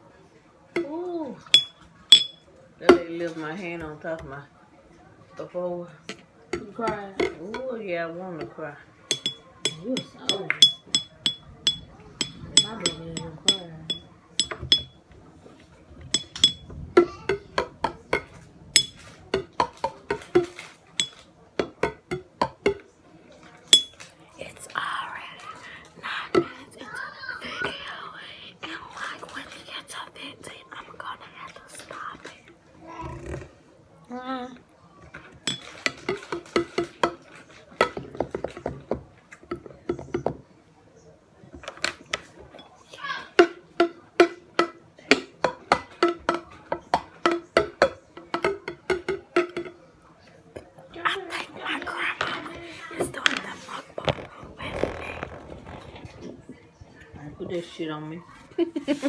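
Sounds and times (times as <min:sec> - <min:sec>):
sharp clinks on dishware: 0:01.5 - 0:02.4, 0:09.1 - 0:15.0, 0:16.1 - 0:17.4, 0:18.2 - 0:19.0, 0:20.4 - 0:21.2, 0:23.8 - 0:24.0
utensil clicking and scraping on plate: 0:09.1 - 0:15.0, 0:16.1 - 0:22.8.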